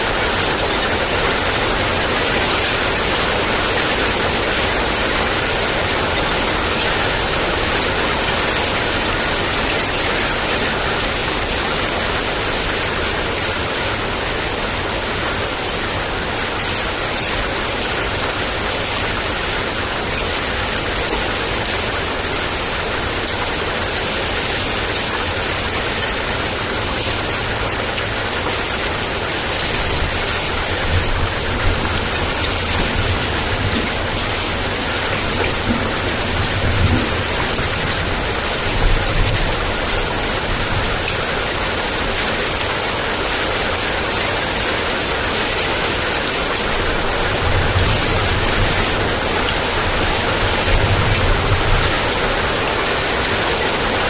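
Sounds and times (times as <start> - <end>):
heavy rain pouring: 0.0 - 54.0
low thunder rumbling: 29.9 - 40.9.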